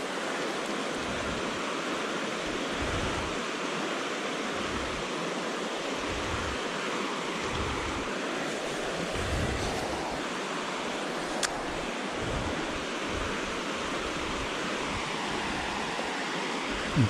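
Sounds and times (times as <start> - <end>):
wind: 0.0 - 17.0
wind buffeting microphone: 2.4 - 3.4, 4.5 - 5.1, 5.9 - 6.7, 7.4 - 10.2, 11.5 - 15.9.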